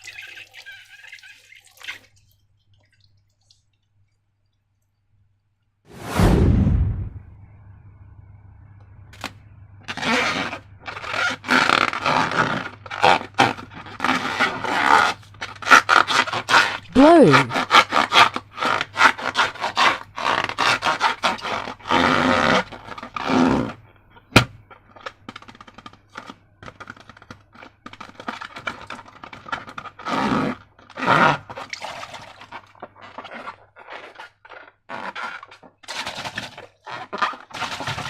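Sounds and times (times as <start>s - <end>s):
slime squelching by hand: 30.9s - 35.9s.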